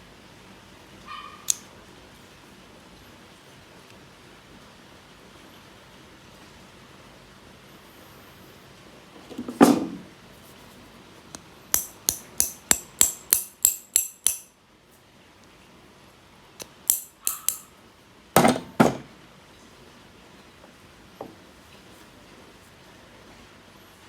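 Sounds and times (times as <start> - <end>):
metal tool tapping and clicking: 11.7 - 14.5, 16.6 - 17.7.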